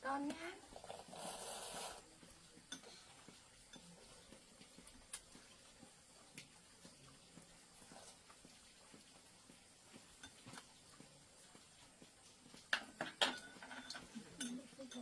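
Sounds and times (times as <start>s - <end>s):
utensils clicking against bowls: 12.7s - 15.0s.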